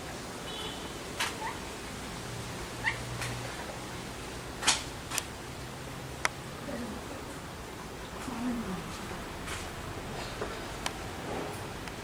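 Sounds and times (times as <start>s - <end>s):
parakeet calls: 2.8s - 3.2s.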